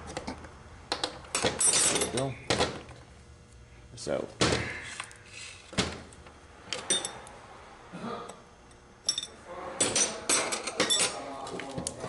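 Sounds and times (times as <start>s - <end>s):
metal tools clinking: 1.4s - 2.4s, 6.8s - 7.2s, 9.1s - 11.2s.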